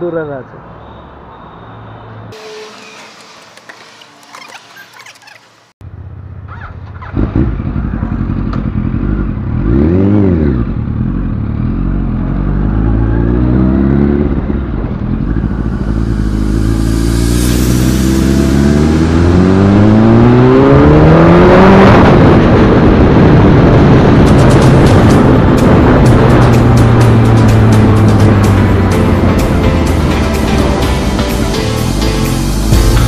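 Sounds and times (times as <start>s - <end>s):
motorcycle engine idling and accelerating: 4.3s - 33.0s.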